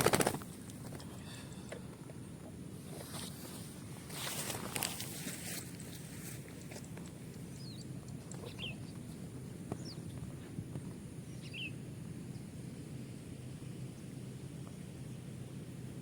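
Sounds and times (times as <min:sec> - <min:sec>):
outdoor background noise: 0:00.0 - 0:16.0
high bird chirps: 0:07.5 - 0:09.0, 0:11.3 - 0:11.8.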